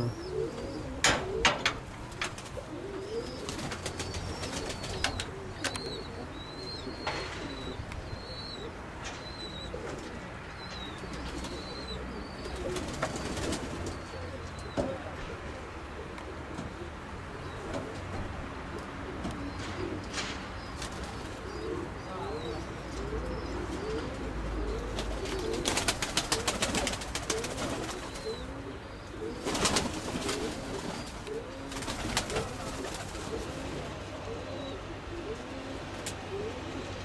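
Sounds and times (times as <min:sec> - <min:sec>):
pigeons cooing: 0:00.0 - 0:37.0
wings flapping: 0:01.8 - 0:05.8, 0:12.4 - 0:14.0, 0:24.9 - 0:28.5, 0:29.4 - 0:33.9.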